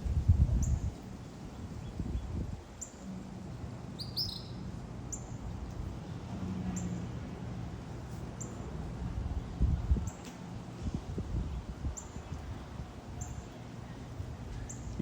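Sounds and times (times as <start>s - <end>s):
songbird chirping: 4.0s - 5.4s.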